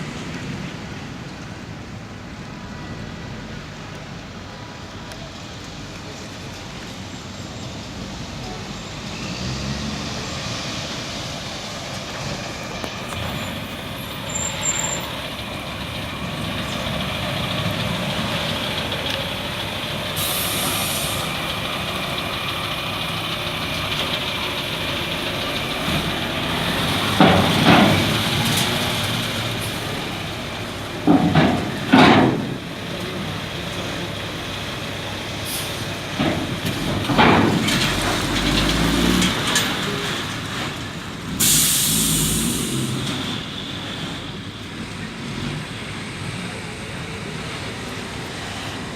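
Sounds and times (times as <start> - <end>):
truck diesel engine running: 10.8 - 48.9.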